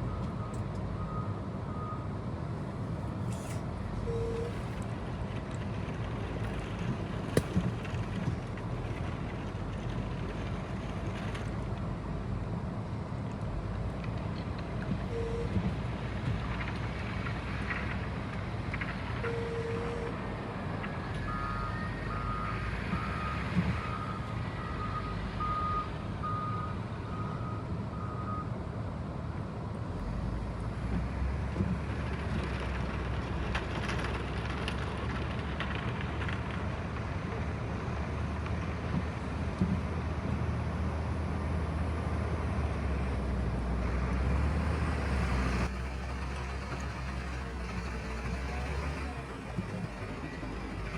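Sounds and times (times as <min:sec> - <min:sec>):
low engine rumble: 0:00.0 - 0:50.9
reversing alarm beeping: 0:04.0 - 0:04.6.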